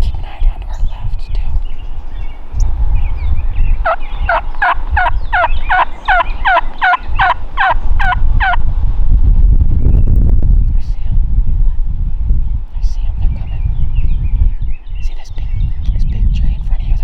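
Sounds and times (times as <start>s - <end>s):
steady low rumble: 0.0s - 17.0s
turkey yelping: 3.5s - 8.6s.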